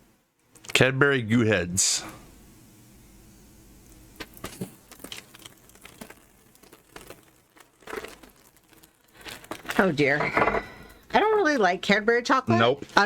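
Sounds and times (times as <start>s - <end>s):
candy wrapper crinkling: 4.2s - 10.2s.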